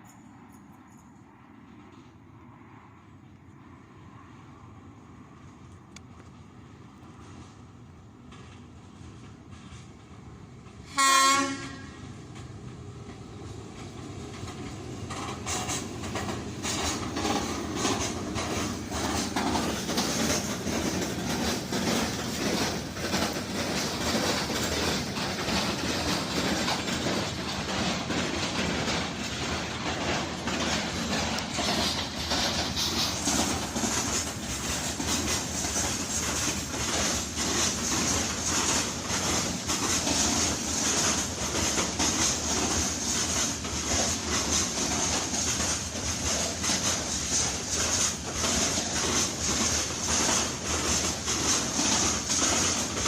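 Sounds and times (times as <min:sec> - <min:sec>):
train rumbling on rails: 0:00.0 - 0:53.0
faint wheel clatter: 0:11.6 - 0:53.0.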